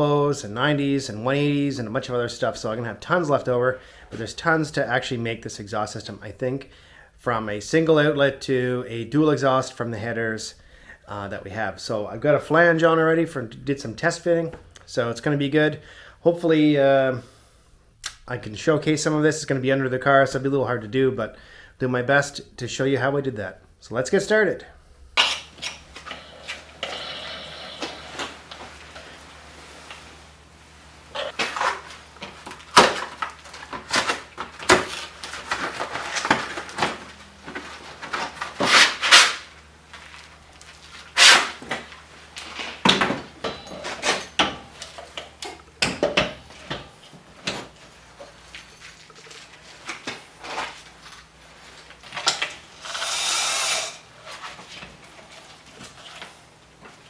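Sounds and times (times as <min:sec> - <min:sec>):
tools clattering: 0:42.9 - 0:47.6
short hiss: 0:52.8 - 0:54.1.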